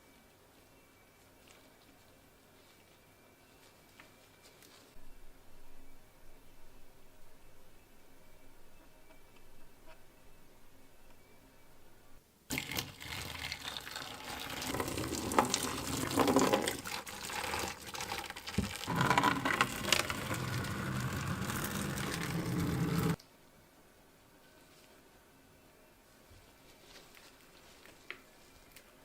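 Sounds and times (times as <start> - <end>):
running water: 12.5 - 23.2.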